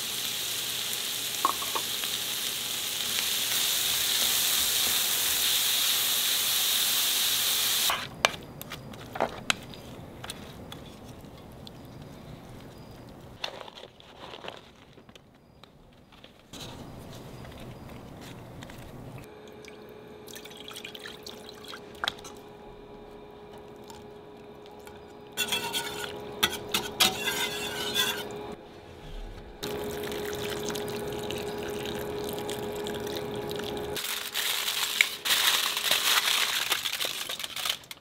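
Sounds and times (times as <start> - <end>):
liquid pouring or stirring: 19.4 - 22.4, 29.6 - 34.0.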